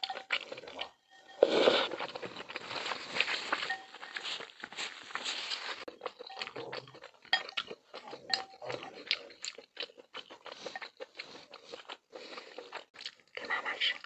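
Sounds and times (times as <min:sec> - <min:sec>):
utensils clinking against a bowl: 0:00.0 - 0:04.5, 0:05.9 - 0:08.9
chewing: 0:00.0 - 0:14.0.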